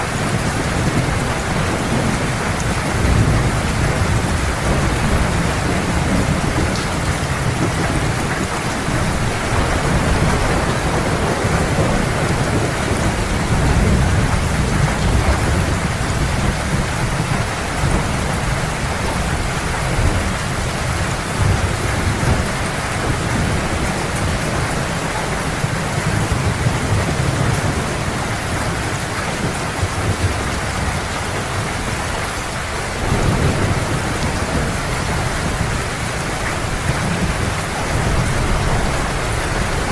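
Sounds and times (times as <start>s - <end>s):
heavy rain: 0.0s - 39.9s
thunder rumbling: 0.0s - 39.9s.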